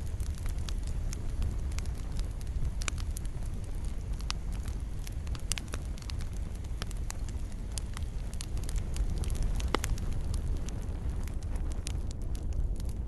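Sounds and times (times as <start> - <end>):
fire flames rumbling: 0.0 - 13.0
fire popping and crackling: 0.0 - 13.0.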